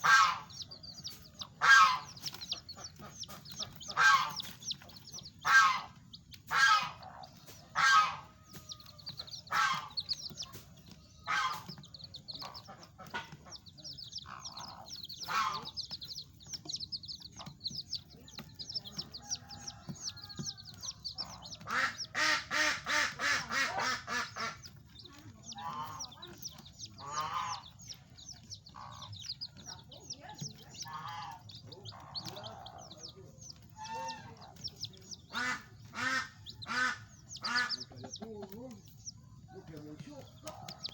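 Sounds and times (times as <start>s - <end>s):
larger fowl calling: 0.0s - 0.6s, 1.5s - 2.2s, 3.9s - 4.6s, 5.4s - 8.4s, 9.3s - 10.2s, 11.2s - 11.8s, 14.2s - 15.9s, 19.3s - 24.7s, 35.3s - 38.2s
chicks peeping: 0.0s - 40.9s.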